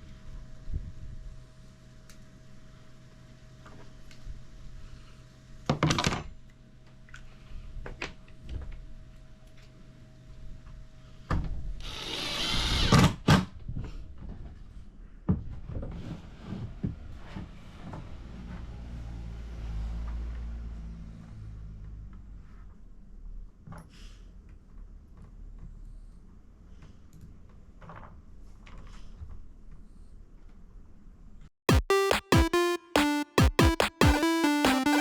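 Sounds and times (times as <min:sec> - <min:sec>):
power tool running: 0:11.8 - 0:12.9.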